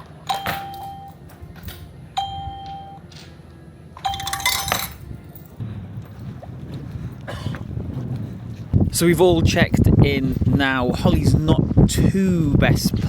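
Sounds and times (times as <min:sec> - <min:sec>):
low rumble of wind: 0:00.0 - 0:13.0
doorbell ding: 0:00.3 - 0:01.3, 0:02.2 - 0:03.0, 0:04.0 - 0:05.0.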